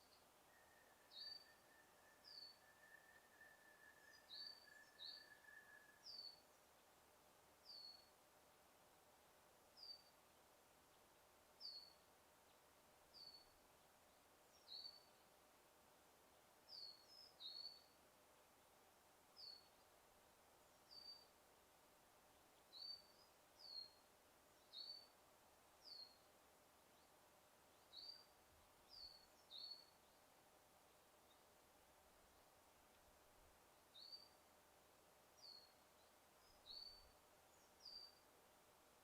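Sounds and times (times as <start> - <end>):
bird chirping: 0.0 - 6.8, 25.8 - 26.2, 27.7 - 30.2, 33.9 - 34.4, 35.4 - 38.2
faint background hiss: 0.0 - 39.0.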